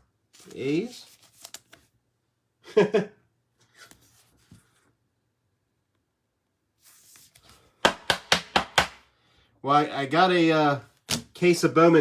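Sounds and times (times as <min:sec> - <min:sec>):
cards rustling: 0:00.3 - 0:01.9.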